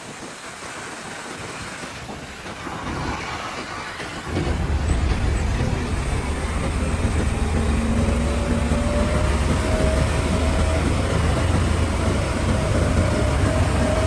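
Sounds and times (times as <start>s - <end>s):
heavy diesel engine drone: 3.4s - 14.0s.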